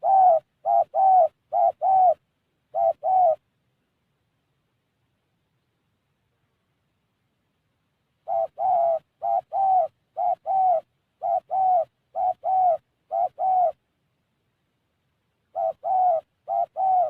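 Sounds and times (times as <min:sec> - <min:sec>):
dove cooing: 0:00.0 - 0:03.5, 0:08.2 - 0:13.9, 0:15.5 - 0:17.0.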